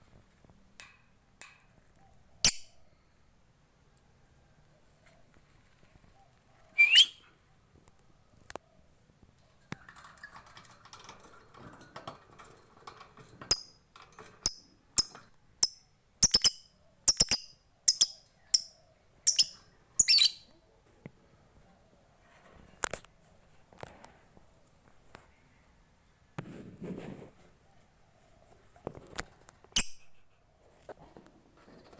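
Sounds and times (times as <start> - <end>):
lovebird chirping: 6.7 - 7.3, 15.0 - 20.5
bird chattering: 6.8 - 7.2, 19.3 - 20.4.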